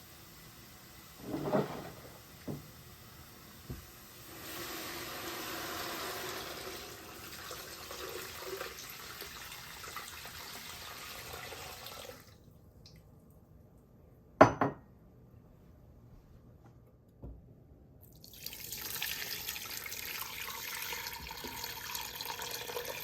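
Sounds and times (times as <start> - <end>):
water running from a tap: 4.0 - 12.4, 18.2 - 23.0.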